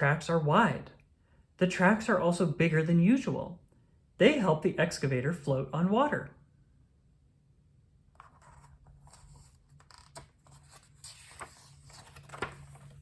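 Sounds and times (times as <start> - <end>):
rustling and scraping handling: 8.2 - 13.0.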